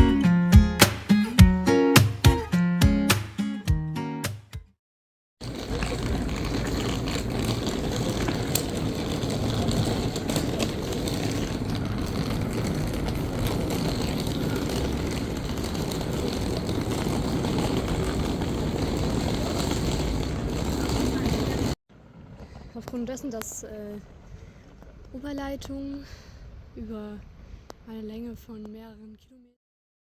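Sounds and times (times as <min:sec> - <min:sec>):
train rumbling in motion: 0:05.4 - 0:23.0.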